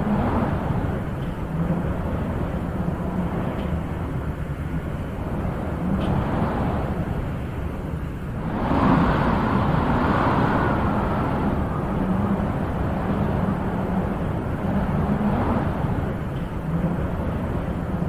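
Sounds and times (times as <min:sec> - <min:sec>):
wind blowing in gusts: 0:00.0 - 0:18.0.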